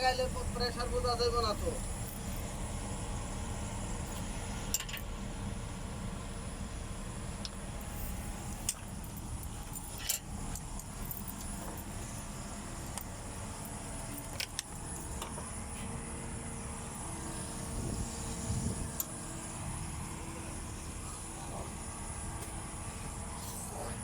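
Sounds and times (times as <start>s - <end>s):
steady low rumble: 0.0s - 24.0s
metal parts clicking and clinking: 8.6s - 11.9s.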